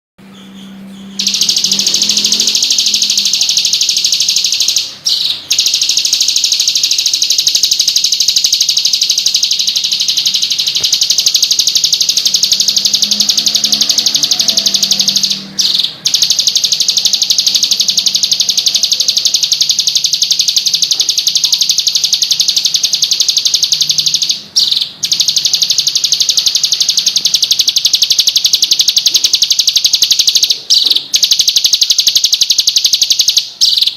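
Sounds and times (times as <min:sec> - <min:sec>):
bird trilling: 0:00.2 - 0:33.9.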